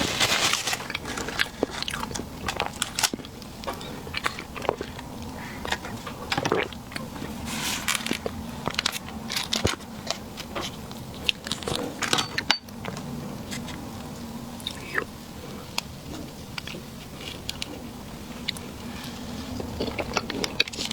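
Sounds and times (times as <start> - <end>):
close-miked chewing and wet smacks: 1.4 - 7.4.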